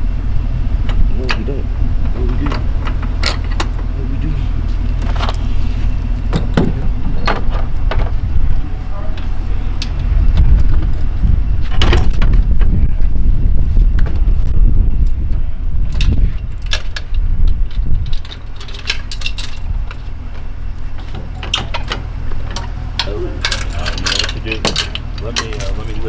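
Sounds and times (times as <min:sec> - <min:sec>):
vehicle engine running low: 0:00.0 - 0:26.0
metal clinks and rattles: 0:15.9 - 0:20.4, 0:21.0 - 0:26.0.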